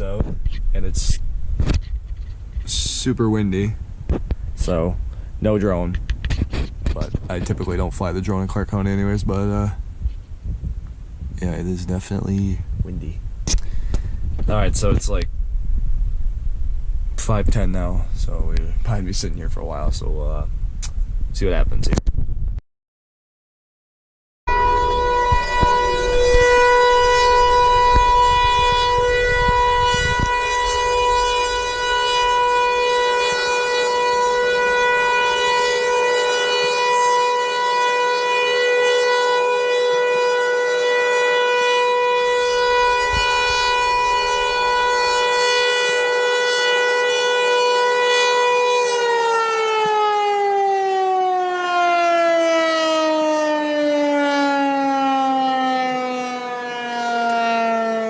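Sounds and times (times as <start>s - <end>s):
warning siren: 0.0s - 12.9s, 13.7s - 15.3s, 24.5s - 58.0s
wind buffeting microphone: 0.0s - 22.6s, 24.5s - 35.8s, 40.4s - 49.0s.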